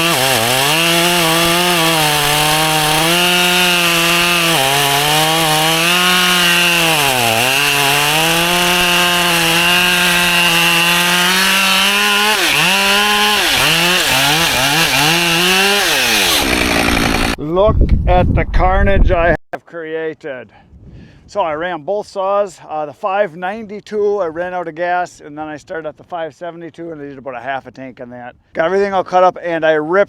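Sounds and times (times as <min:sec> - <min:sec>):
chainsaw cutting wood: 0:00.0 - 0:17.4.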